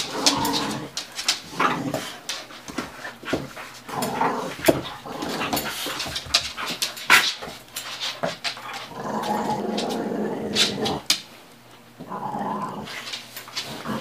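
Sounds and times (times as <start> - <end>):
dogs play-fighting: 0.0 - 11.3, 11.9 - 14.0.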